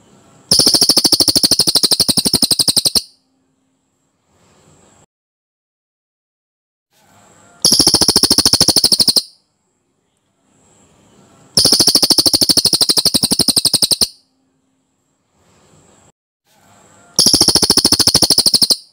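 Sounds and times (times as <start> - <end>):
bird rolling trills: 0.5 - 3.0, 7.6 - 9.3, 11.6 - 14.1, 17.2 - 18.9.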